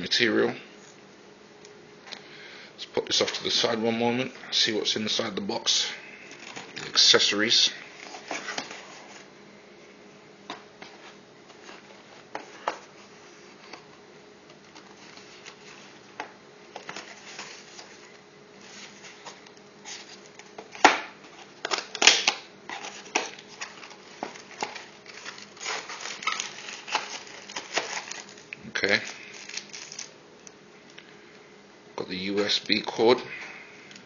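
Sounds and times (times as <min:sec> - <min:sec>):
plastic rustling: 0:05.8 - 0:09.3, 0:10.5 - 0:30.2.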